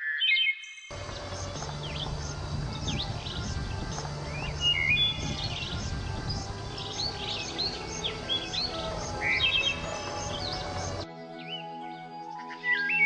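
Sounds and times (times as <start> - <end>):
low steady hum: 0.9 - 11.0
birds chirping: 0.9 - 13.0.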